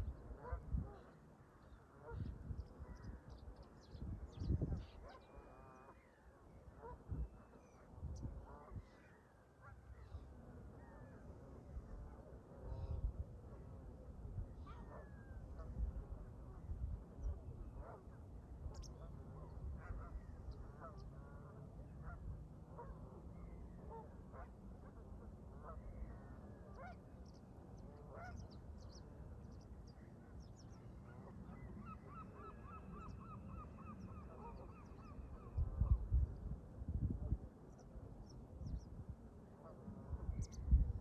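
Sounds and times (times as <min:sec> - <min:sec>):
low wind rumble: 0:02.1 - 0:05.0, 0:35.2 - 0:41.0.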